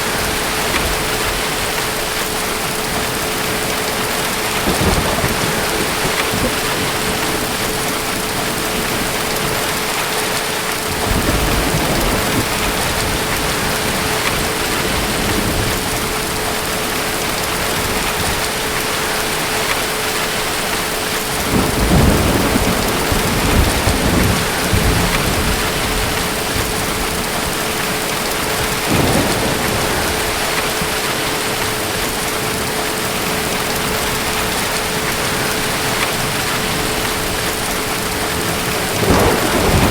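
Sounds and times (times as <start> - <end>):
distant thunder rumbling: 0.0 - 9.9, 10.9 - 19.4, 21.4 - 39.9
steady rain: 0.0 - 39.9.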